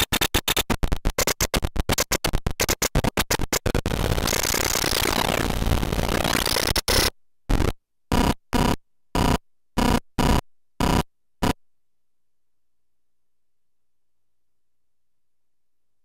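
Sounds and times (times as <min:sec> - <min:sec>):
choppy static bursts with buzzy tone: 0:00.0 - 0:11.6.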